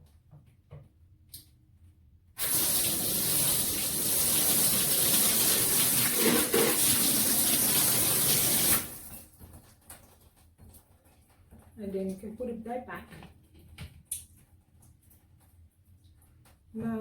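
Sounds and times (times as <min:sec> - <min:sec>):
water spraying from shower head: 0:02.4 - 0:09.2.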